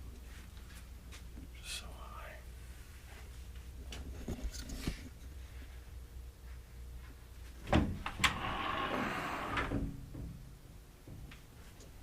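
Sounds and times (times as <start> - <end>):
door scraping and rattling: 7.7 - 10.0.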